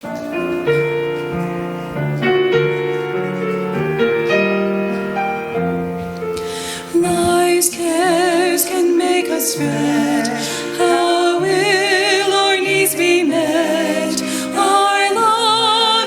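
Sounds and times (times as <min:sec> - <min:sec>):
piano chords: 0:00.0 - 0:16.0
women's choir singing: 0:06.5 - 0:16.0.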